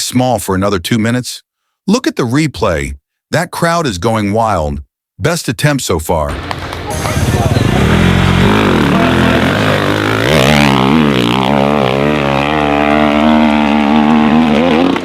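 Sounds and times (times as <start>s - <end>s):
dirt bike engine revving hard: 7.0s - 15.0s.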